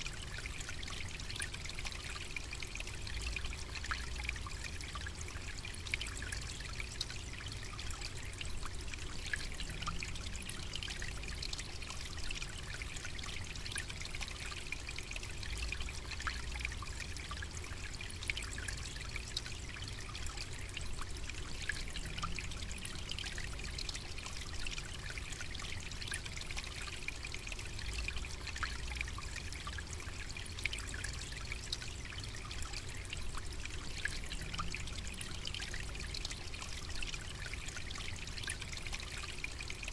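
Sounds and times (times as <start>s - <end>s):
faint ticks and crackles: 0.0s - 39.9s.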